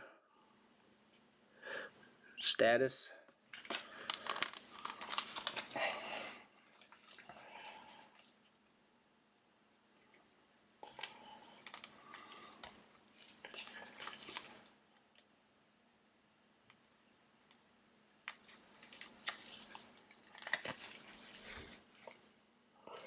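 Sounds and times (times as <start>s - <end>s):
trading cards and packs handled: 3.5s - 8.6s, 10.8s - 15.3s, 18.2s - 23.0s.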